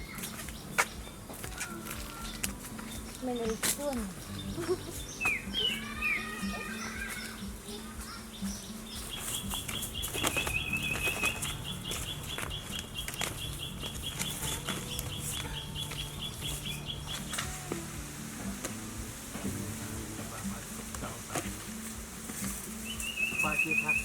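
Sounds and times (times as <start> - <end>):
high even chirping: 0.0 - 20.9, 22.6 - 24.0
chickens flapping wings: 9.1 - 15.1.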